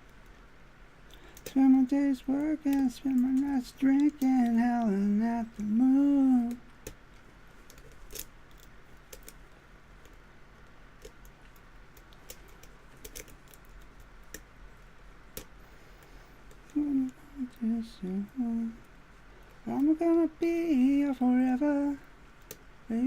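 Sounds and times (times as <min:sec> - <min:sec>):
man humming: 0:01.5 - 0:06.6, 0:16.7 - 0:18.8.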